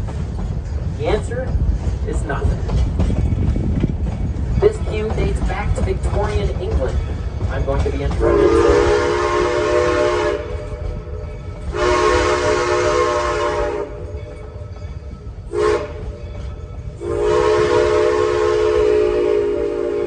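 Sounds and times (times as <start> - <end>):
train rumbling: 0.0 - 20.0
locomotive whistle blasts: 8.2 - 10.8, 11.7 - 14.1, 15.5 - 16.0, 17.0 - 20.0.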